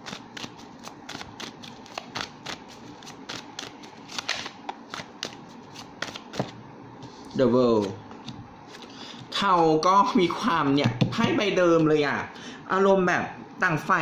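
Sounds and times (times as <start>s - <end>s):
cards being shuffled: 0.0s - 6.6s, 7.7s - 9.0s.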